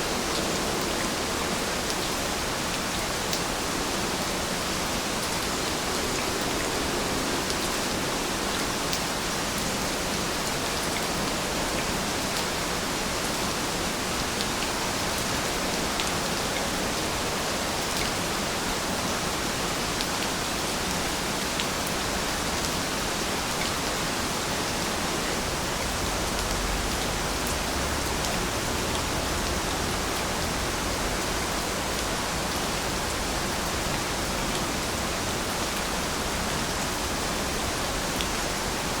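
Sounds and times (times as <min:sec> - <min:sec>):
steady rain hiss: 0:00.0 - 0:39.0.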